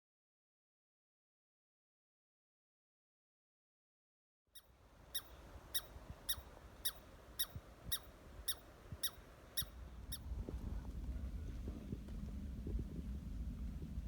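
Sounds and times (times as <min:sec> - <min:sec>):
low rumble: 0:09.8 - 0:14.0.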